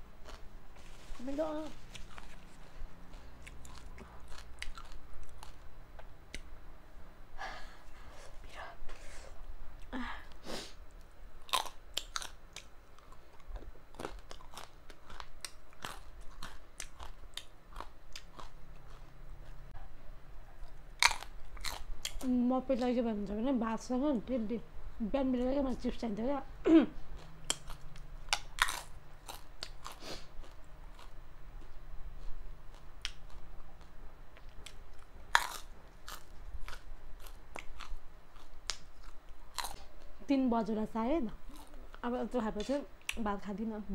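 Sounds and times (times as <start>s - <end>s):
crunchy snack chewing: 0.2s - 1.1s, 1.7s - 5.6s, 11.4s - 19.6s, 20.6s - 22.3s, 27.2s - 40.1s, 41.4s - 41.9s.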